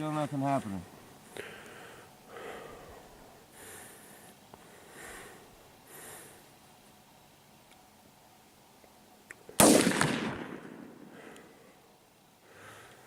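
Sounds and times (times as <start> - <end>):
person breathing softly: 1.2 - 6.5, 11.0 - 13.0.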